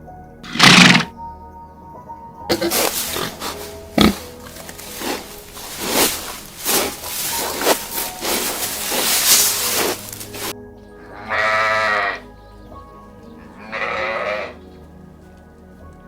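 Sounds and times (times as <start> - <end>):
faint steady background tones: 0.0 - 16.0
animal rough calls: 0.5 - 1.1, 2.5 - 10.5, 13.5 - 14.6.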